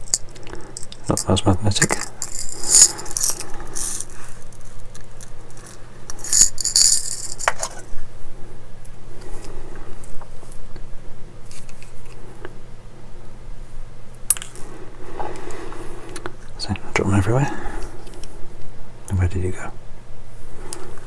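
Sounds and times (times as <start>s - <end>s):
small screws rattling on a desk: 0.0s - 7.9s.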